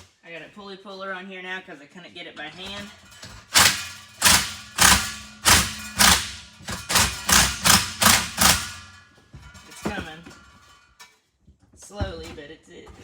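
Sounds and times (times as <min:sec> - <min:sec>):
hammer striking metal: 0:02.6 - 0:10.8.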